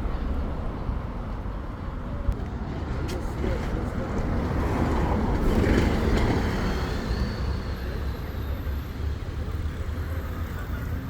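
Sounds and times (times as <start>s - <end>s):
vehicles passing on busy street: 0.0s - 11.0s.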